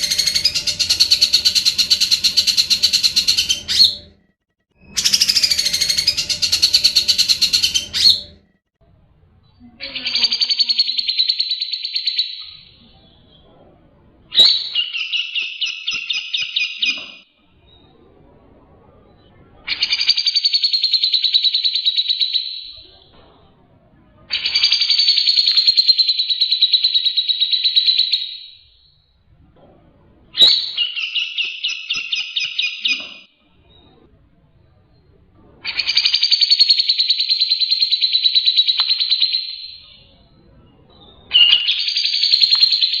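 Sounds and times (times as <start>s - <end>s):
bird chattering calls: 0.0s - 4.1s, 4.9s - 8.4s
bird singing rattling trill: 0.0s - 4.2s, 4.8s - 8.4s, 9.8s - 13.5s, 19.1s - 22.9s, 24.3s - 29.1s, 30.4s - 34.0s, 34.9s - 43.0s.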